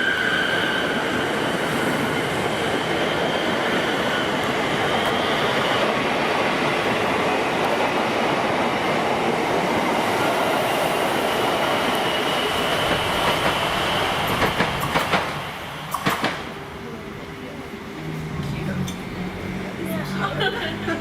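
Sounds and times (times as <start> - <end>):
train rolling on rails: 0.0 - 21.0
sharp rail clicks: 14.3 - 16.5.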